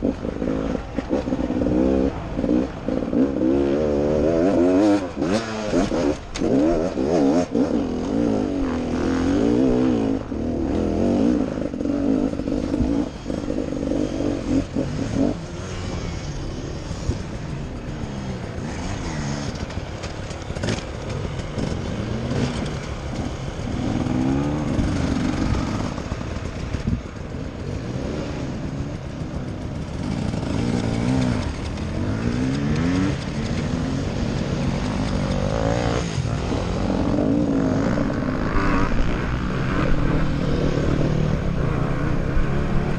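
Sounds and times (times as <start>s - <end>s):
dirt bike engine revving: 0.0s - 17.2s, 18.0s - 42.9s.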